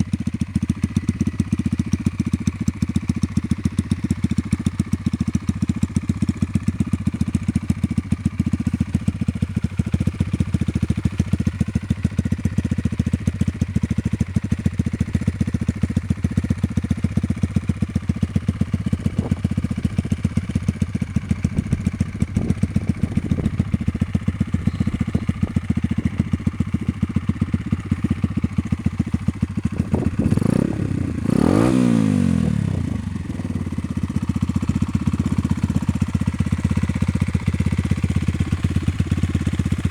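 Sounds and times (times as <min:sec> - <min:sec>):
motorcycle engine idling: 0:00.0 - 0:39.9
engine revving: 0:29.9 - 0:33.1.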